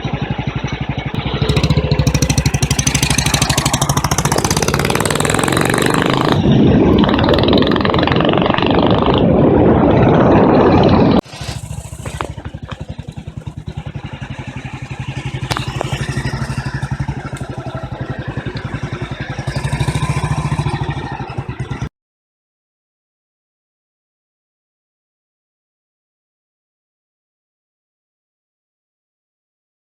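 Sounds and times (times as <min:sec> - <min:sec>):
motorcycle engine running: 0:00.0 - 0:09.4, 0:10.7 - 0:21.9.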